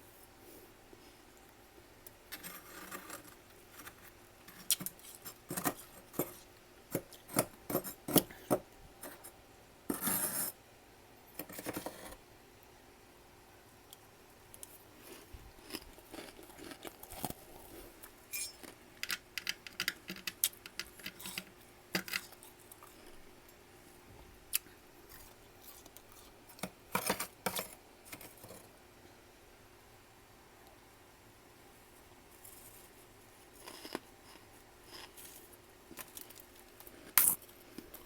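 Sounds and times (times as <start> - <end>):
frost being chewed: 14.5 - 18.8, 33.4 - 38.0.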